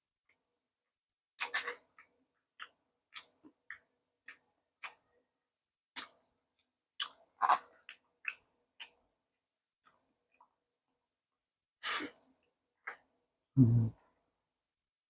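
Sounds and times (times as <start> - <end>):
crunchy chewing: 7.0 - 9.0.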